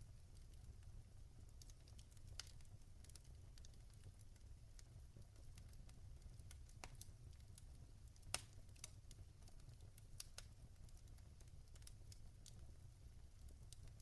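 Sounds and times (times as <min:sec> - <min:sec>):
logs crackling in a fireplace: 0:00.0 - 0:14.0.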